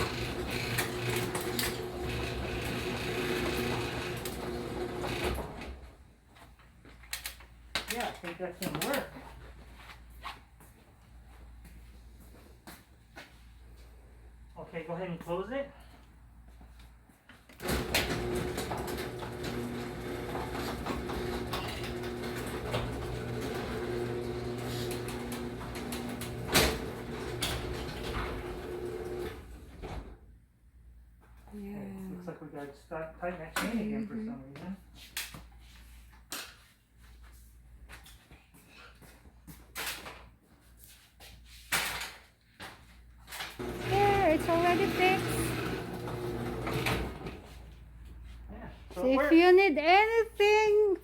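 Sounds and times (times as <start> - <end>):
garage door motor hum: 0.0 - 6.0, 17.6 - 30.2, 43.6 - 47.6.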